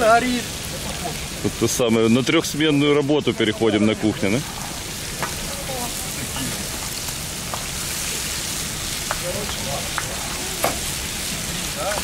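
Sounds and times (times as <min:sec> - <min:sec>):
faint voices: 0:00.0 - 0:06.9, 0:08.1 - 0:12.0
food sizzling over campfire: 0:00.0 - 0:12.0.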